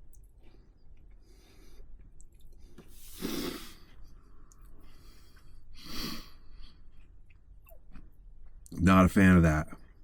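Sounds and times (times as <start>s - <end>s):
breath: 0.4s - 1.9s, 2.6s - 6.9s.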